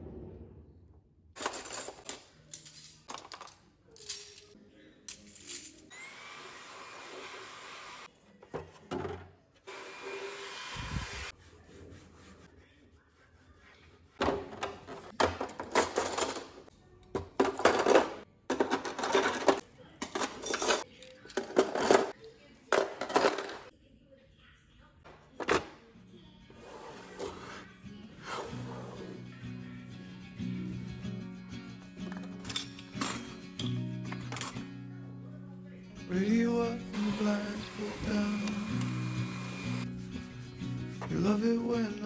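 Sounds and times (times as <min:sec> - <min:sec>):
kitchen items clinking and knocking: 0:01.4 - 0:04.6, 0:08.4 - 0:09.4, 0:14.2 - 0:23.7, 0:25.1 - 0:25.8, 0:32.0 - 0:34.7.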